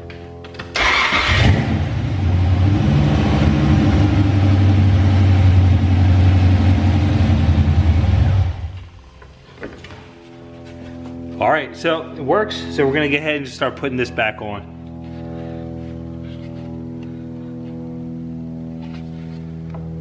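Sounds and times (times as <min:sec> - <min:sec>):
car engine starting and running: 0:00.1 - 0:09.2.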